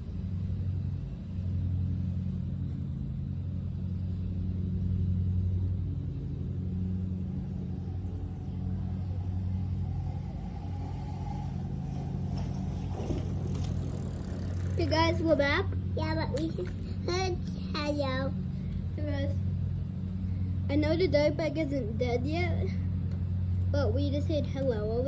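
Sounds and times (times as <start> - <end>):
dirt bike engine running: 1.7 - 17.1.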